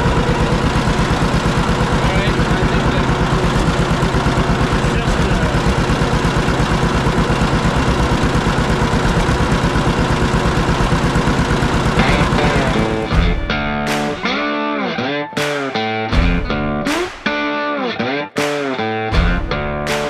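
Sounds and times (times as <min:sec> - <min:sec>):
tractor diesel engine idling: 0:00.0 - 0:13.7.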